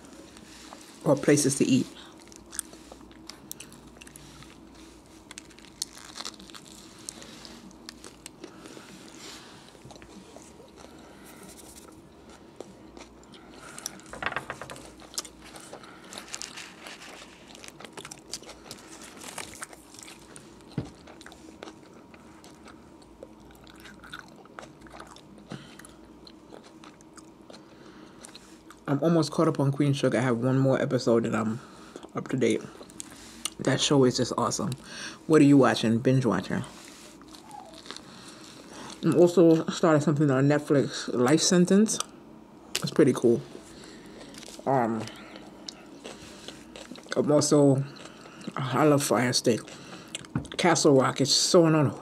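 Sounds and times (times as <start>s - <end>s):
biting and chewing sandwich: 0.0s - 28.8s, 36.8s - 39.6s, 43.6s - 48.7s
faint steady hum: 0.0s - 52.0s.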